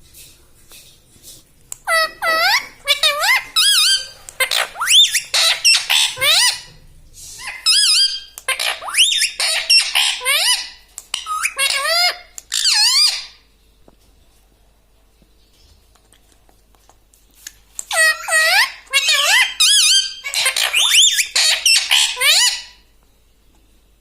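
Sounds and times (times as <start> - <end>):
parrot squawking: 1.8 - 6.7, 7.4 - 13.4, 17.8 - 22.8.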